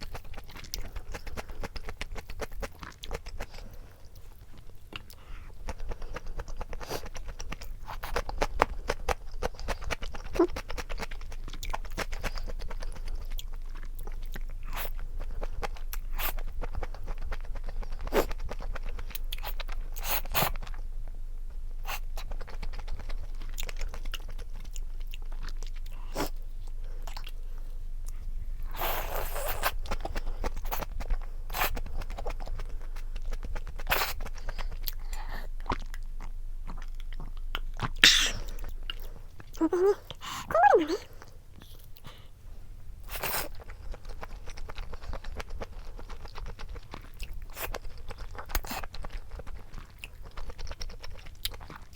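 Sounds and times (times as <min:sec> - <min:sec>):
person chewing and crunching food: 0:00.0 - 0:51.9
small wet mouth clicks: 0:37.2 - 0:38.8.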